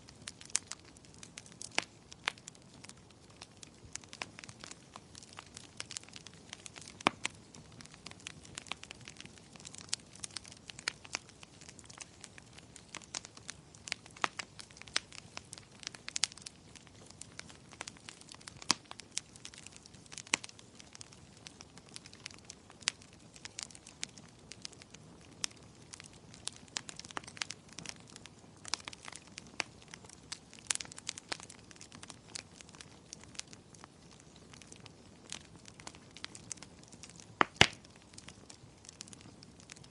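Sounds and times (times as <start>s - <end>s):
fire crackling and popping: 0.0s - 39.9s
low steady hiss: 0.0s - 39.9s.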